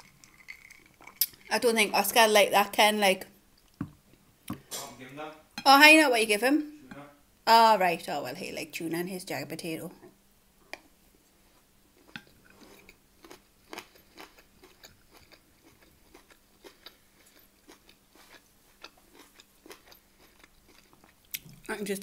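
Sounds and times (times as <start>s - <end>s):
chewing mouth clicks: 0.0s - 1.5s, 12.1s - 21.7s.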